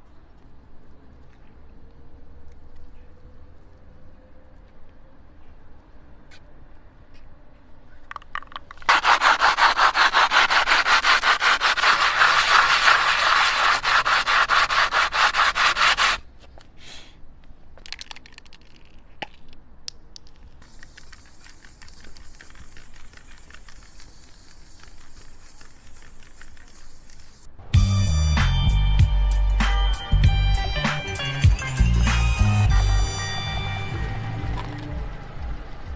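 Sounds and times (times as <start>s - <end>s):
rapid rhythmic scraping: 8.2s - 16.2s, 20.6s - 27.5s, 30.8s - 35.9s.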